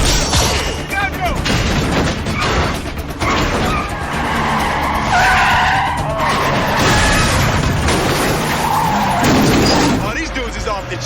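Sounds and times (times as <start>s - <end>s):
car engines running hard: 0.7s - 11.0s
car tyres squealing: 1.8s - 10.3s.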